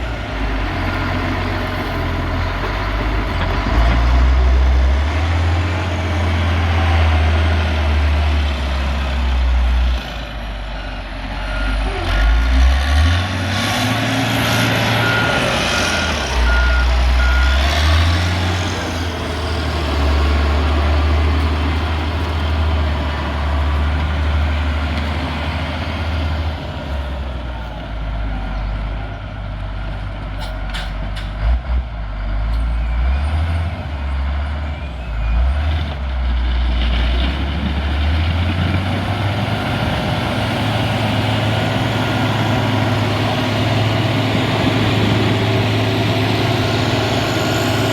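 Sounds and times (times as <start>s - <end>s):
diesel machine engine under load: 0.0s - 47.9s
reversing alarm beeping: 14.7s - 18.0s.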